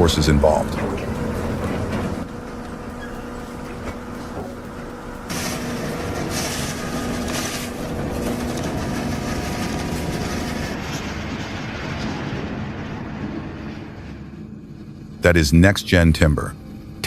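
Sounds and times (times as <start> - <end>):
heavy machinery engine drone: 0.0 - 17.0
machinery rumbling and rattling: 0.0 - 17.0.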